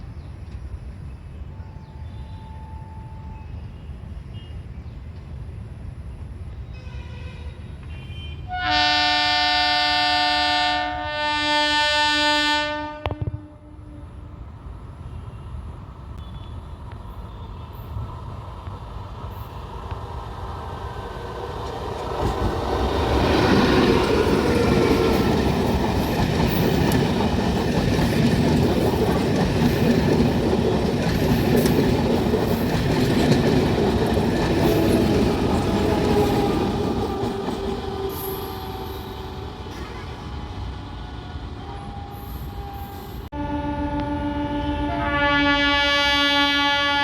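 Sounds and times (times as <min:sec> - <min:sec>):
electric train passing: 0:00.0 - 0:47.0
wheels rumbling on rails: 0:14.3 - 0:43.3.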